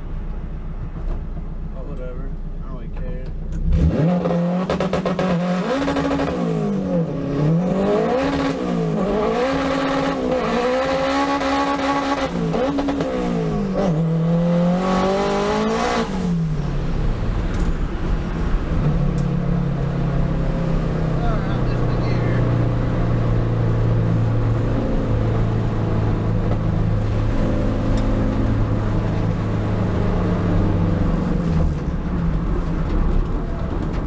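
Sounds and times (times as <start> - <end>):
race car engine accelerating: 3.5 - 17.8.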